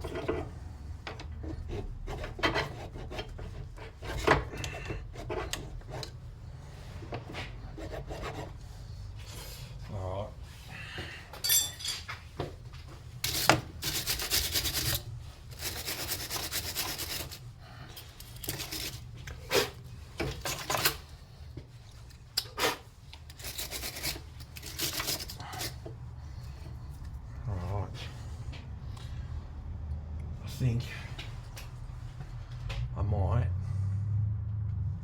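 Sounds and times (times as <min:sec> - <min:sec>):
hand file scraping metal: 0:00.0 - 0:06.2, 0:07.3 - 0:08.7, 0:13.2 - 0:17.5, 0:18.2 - 0:19.8, 0:22.5 - 0:25.9.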